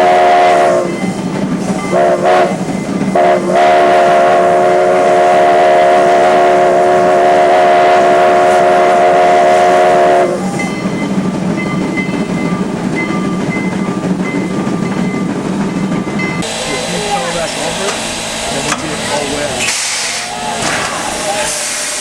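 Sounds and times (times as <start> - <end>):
steam locomotive chime whistle: 0.0 - 15.2
train running noise: 0.0 - 22.0.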